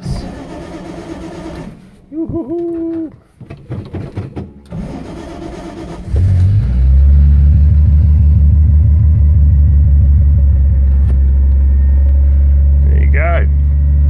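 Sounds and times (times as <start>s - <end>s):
starter motor cranking: 0.0s - 1.9s, 4.6s - 6.6s
car engine running: 4.7s - 14.0s.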